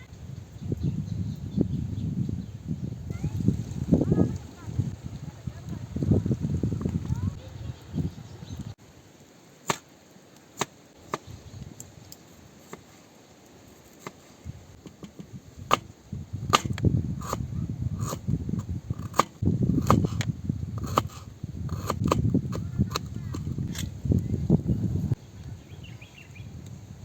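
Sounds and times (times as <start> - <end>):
sharp knocks and clicks: 14.8 - 15.9.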